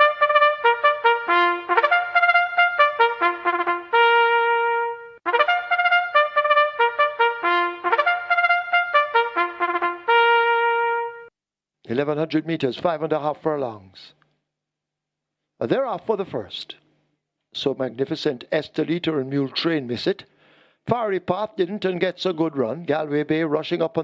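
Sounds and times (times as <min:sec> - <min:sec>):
trumpet playing fanfare: 0:00.0 - 0:11.3.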